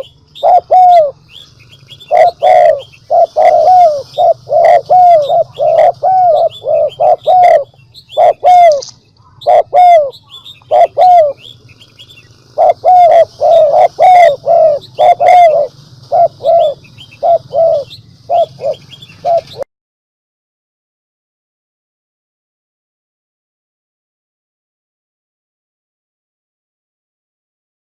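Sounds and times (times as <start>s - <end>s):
steady low hum: 0.0s - 19.6s
dove cooing: 0.0s - 19.7s.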